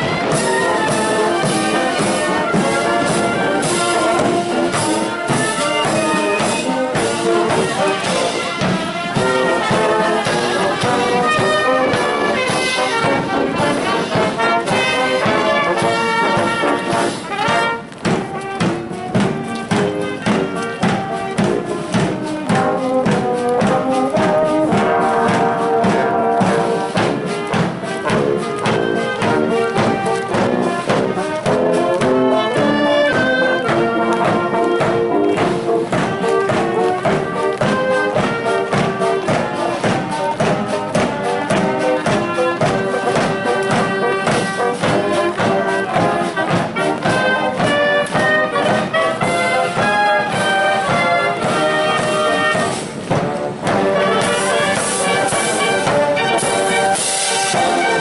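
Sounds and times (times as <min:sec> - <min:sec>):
brass playing march tune: 0:00.0 - 0:58.0
steady drum beat: 0:00.0 - 0:58.0.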